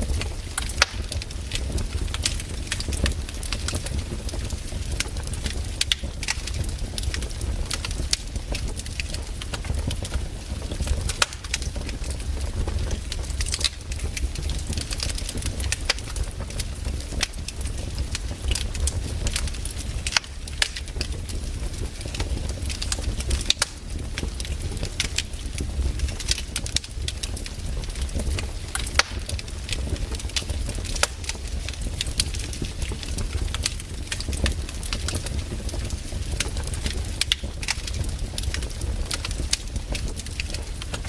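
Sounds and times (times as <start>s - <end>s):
campfire crackling and popping: 0.0s - 41.0s.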